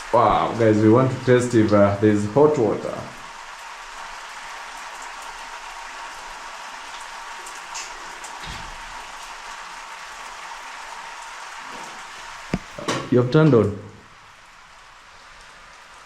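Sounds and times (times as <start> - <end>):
low thump: 12.6 - 13.0.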